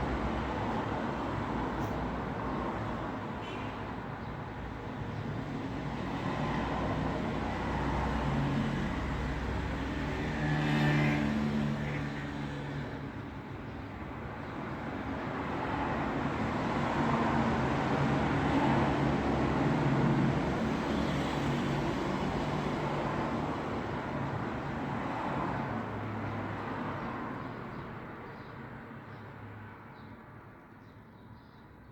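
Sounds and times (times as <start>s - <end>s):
vehicle passing by: 6.1s - 13.1s.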